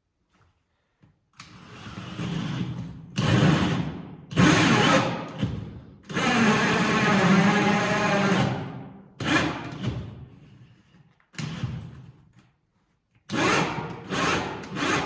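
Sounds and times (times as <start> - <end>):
drill with hole saw cutting: 1.6 - 3.8, 4.4 - 5.2, 6.1 - 10.0, 13.3 - 15.0.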